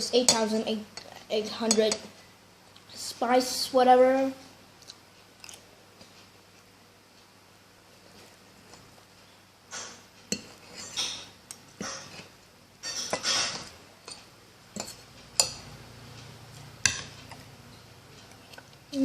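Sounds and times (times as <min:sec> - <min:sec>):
cutlery scraping on a plate: 0:09.7 - 0:15.6
cutlery clinking on a plate: 0:12.8 - 0:15.6.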